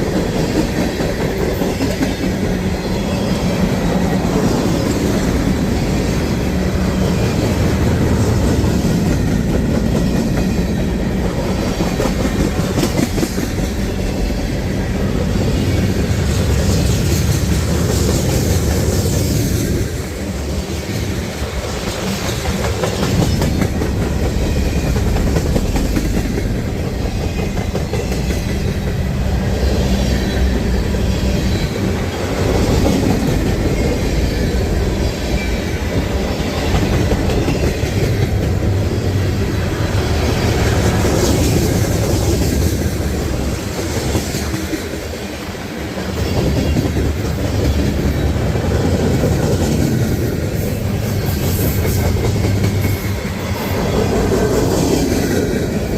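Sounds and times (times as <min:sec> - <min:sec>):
freight train rolling past: 0:00.0 - 0:55.9
train cars clacking over rail joints: 0:15.4 - 0:29.2.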